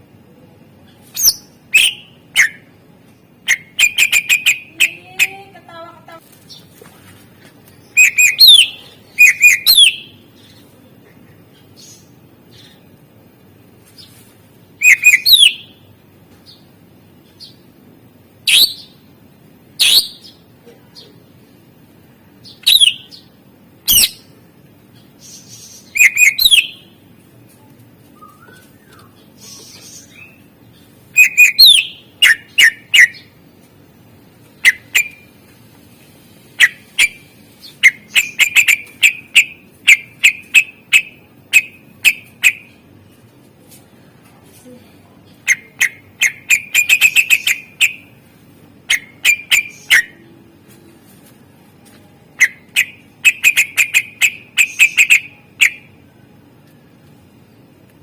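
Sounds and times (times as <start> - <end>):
bird singing whistled notes: 1.2 - 2.7, 3.5 - 4.7, 7.9 - 10.2, 14.8 - 15.7, 19.8 - 20.3, 22.5 - 23.1, 25.7 - 26.9, 28.2 - 30.4, 31.2 - 33.3, 34.6 - 35.3, 52.4 - 55.9.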